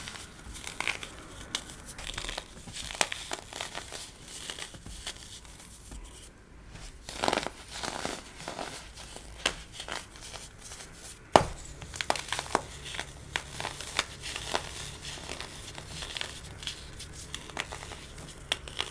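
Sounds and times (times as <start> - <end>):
baking soda crunching: 0.0 - 18.9.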